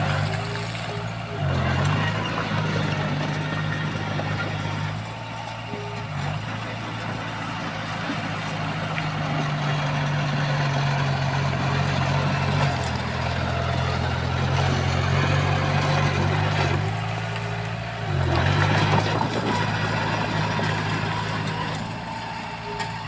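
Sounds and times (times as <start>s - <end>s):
diesel engine droning: 0.0s - 23.0s.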